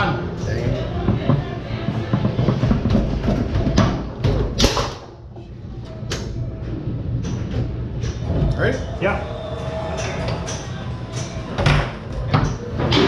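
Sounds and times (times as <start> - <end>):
foosball ball and rods clacking: 1.0 - 5.1.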